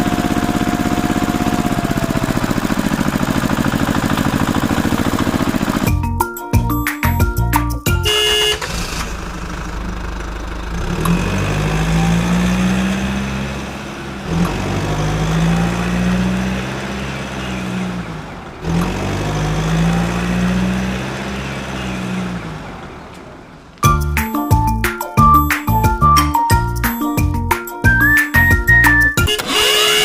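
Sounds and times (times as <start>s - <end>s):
vehicle engine revving: 0.0s - 6.0s, 8.1s - 23.7s, 28.0s - 30.0s.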